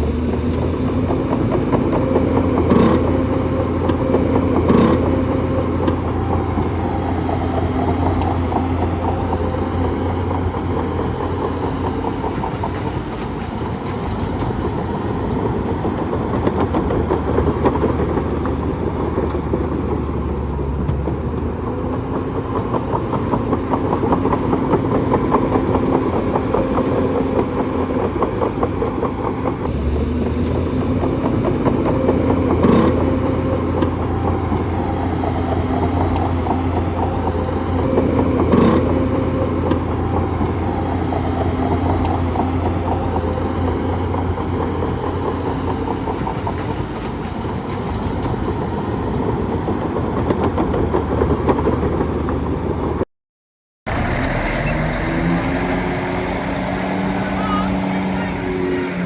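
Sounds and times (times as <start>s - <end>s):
fast mechanical rattle: 0.0s - 20.3s
bulldozer diesel engine running: 0.0s - 53.0s, 53.9s - 59.0s.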